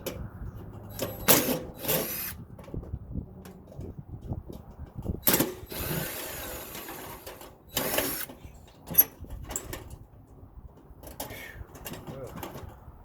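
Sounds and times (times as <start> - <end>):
power drill running: 1.8 - 2.4, 5.6 - 8.3.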